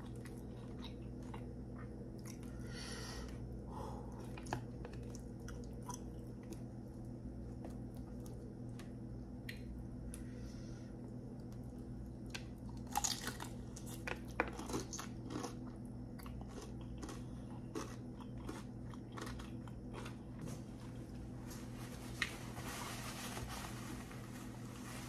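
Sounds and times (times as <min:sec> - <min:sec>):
wet chewing: 0:12.3 - 0:20.5.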